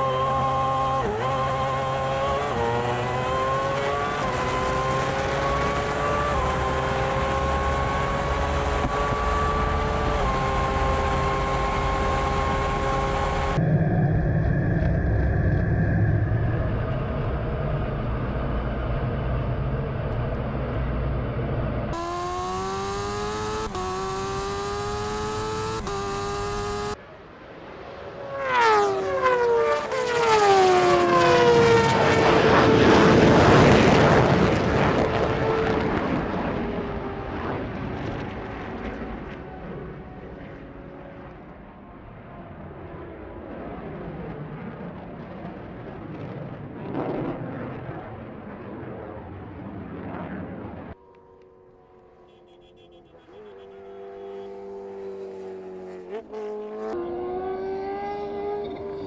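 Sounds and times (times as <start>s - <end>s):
engine upshifting: 0.0s - 27.0s, 50.9s - 59.0s
vehicles passing by: 0.0s - 42.2s, 50.5s - 59.0s
racing engines at full throttle: 0.0s - 45.2s, 49.9s - 59.0s.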